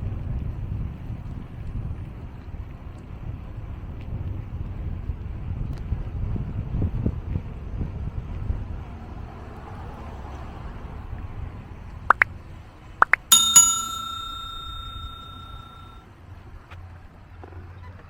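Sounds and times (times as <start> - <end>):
bicycle bell ringing: 13.3 - 16.0.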